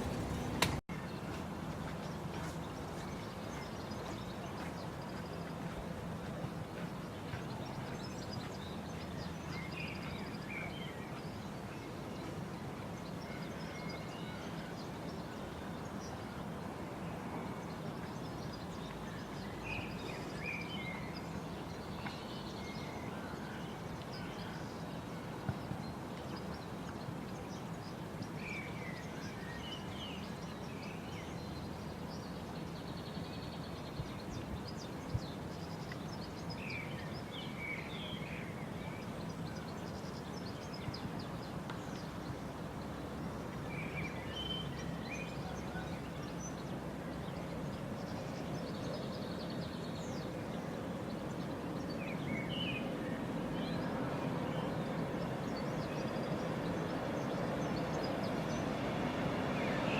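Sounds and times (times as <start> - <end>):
outdoor background rumble: 0.0 - 0.8.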